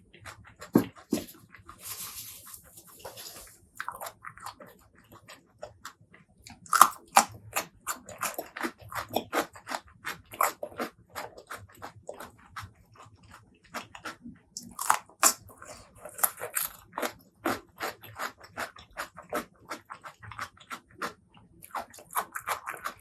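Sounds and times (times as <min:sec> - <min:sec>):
chewing with mouth smacks: 0:00.0 - 0:23.0
chewing clicks: 0:03.8 - 0:23.0.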